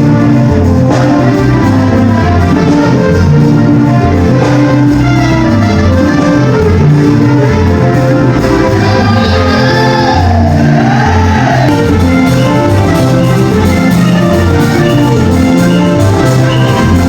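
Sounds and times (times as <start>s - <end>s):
loud upbeat music with bass beat: 0.0s - 17.0s
person singing or shouting: 8.7s - 12.1s.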